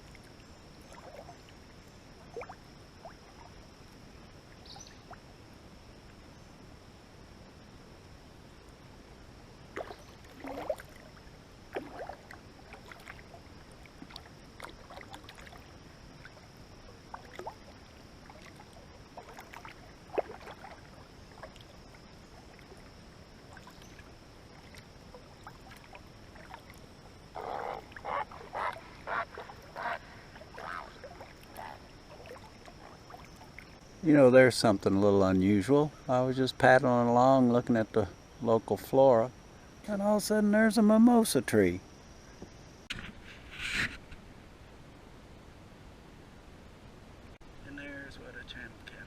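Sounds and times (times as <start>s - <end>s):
paddle splashing in water: 0.0s - 1.6s, 9.7s - 33.8s.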